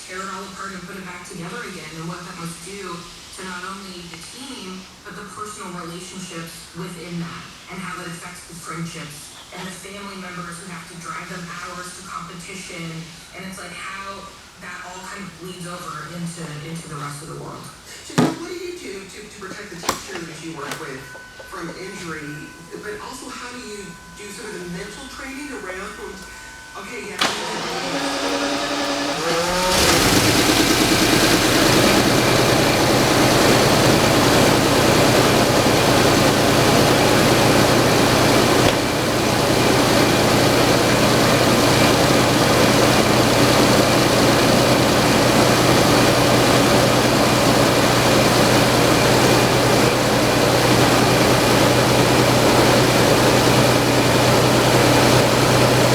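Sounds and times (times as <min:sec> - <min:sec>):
car engine starting and running: 0:27.2 - 0:55.9.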